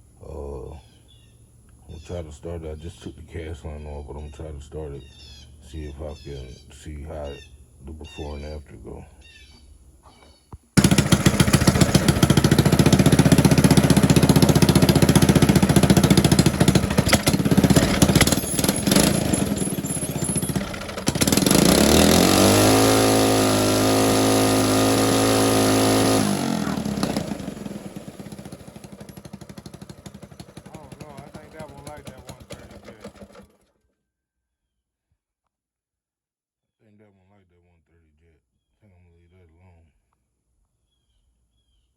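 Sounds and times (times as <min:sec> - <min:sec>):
small engine revving: 0:10.8 - 0:33.7.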